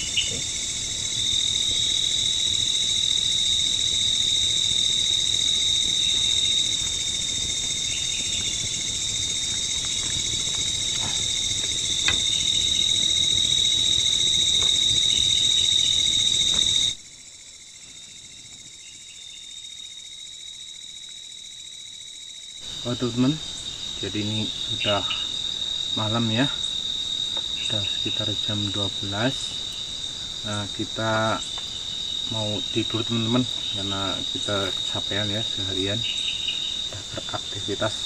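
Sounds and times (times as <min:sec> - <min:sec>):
hiss: 0:00.0 - 0:17.2
insects trilling: 0:00.0 - 0:38.0.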